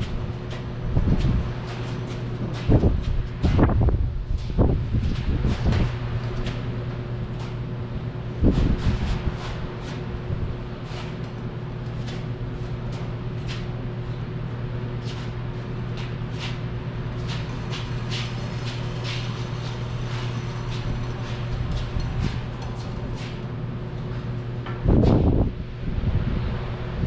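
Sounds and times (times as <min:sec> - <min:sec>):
steady low hum: 0:00.0 - 0:27.0
rope squeaking through pulley: 0:17.1 - 0:23.5.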